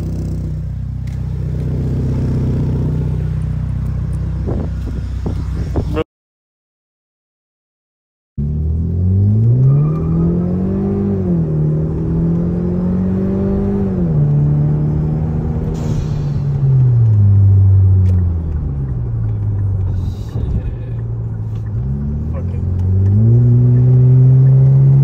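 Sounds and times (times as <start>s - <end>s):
turbocharged car engine accelerating: 8.4s - 25.0s.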